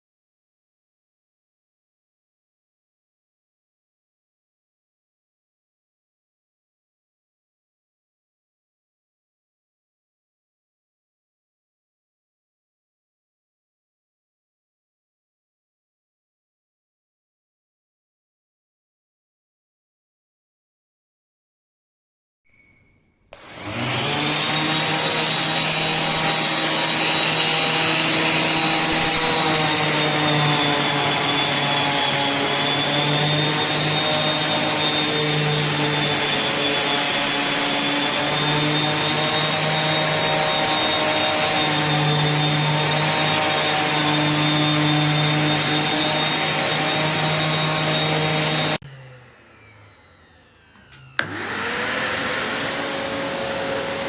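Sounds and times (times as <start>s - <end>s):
shop vacuum motor whining: 23.4s - 54.0s.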